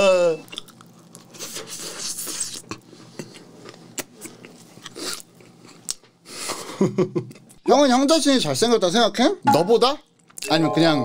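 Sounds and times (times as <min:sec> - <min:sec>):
crunching burger bites: 0:00.4 - 0:06.1.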